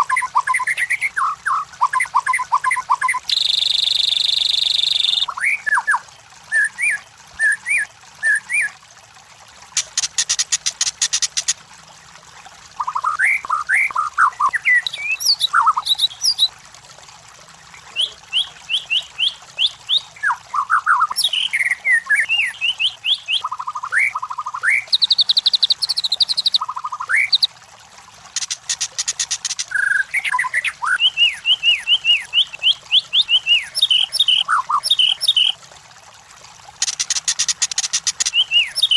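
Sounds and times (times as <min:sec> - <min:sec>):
bird singing whistled notes: 0:00.1 - 0:05.9, 0:13.0 - 0:16.5, 0:17.9 - 0:27.5, 0:29.8 - 0:35.6, 0:38.2 - 0:38.9.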